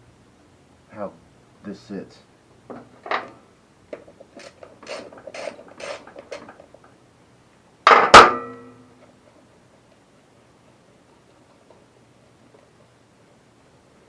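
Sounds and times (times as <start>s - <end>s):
steel clang ringing: 7.9s - 8.9s.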